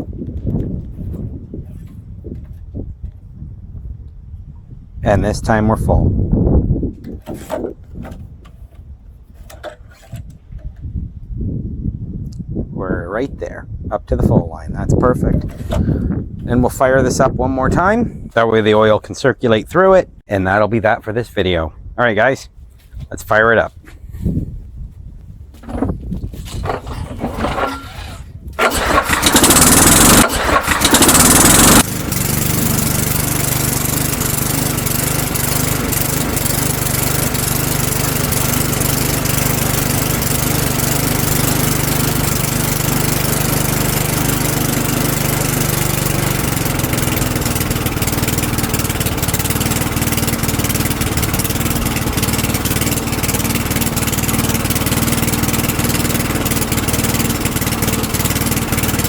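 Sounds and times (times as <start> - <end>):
lawnmower engine starting and running: 6.9 - 10.8, 15.4 - 16.8, 25.5 - 59.0.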